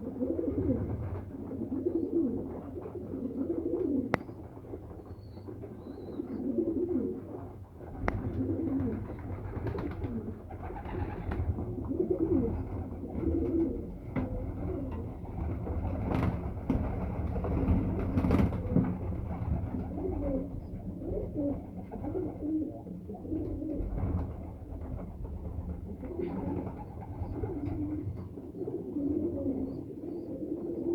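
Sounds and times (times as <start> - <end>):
pigeons cooing: 0.0 - 30.9.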